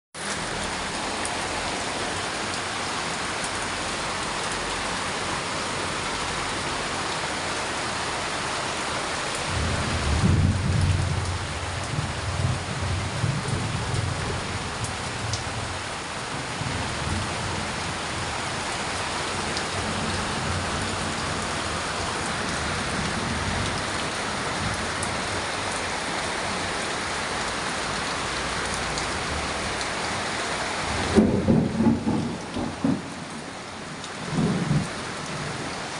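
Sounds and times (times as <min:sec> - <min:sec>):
heavy rain pouring: 0:00.2 - 0:35.9
thunder rumbling: 0:09.5 - 0:15.7, 0:30.9 - 0:33.4.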